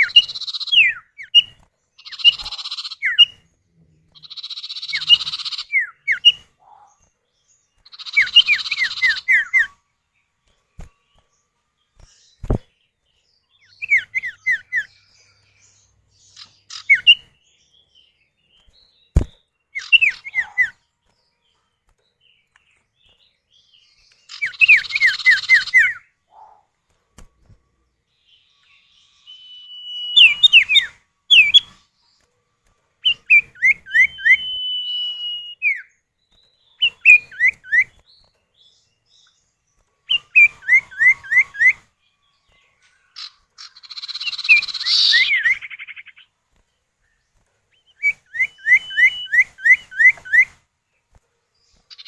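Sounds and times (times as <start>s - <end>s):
bird whistled calls: 0.0s - 3.4s, 4.2s - 6.5s, 19.8s - 20.8s, 28.6s - 31.8s, 33.0s - 35.9s, 36.8s - 38.0s, 40.1s - 41.9s, 43.2s - 46.2s, 47.9s - 50.6s.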